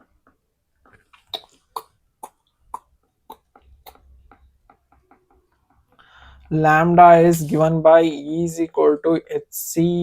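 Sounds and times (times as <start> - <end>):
writing taps: 3.0 - 6.1.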